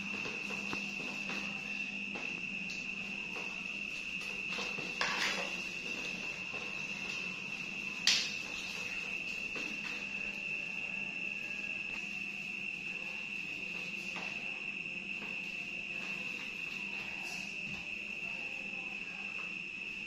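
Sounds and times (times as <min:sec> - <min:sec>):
steady high-pitched tone: 0:00.0 - 0:20.0.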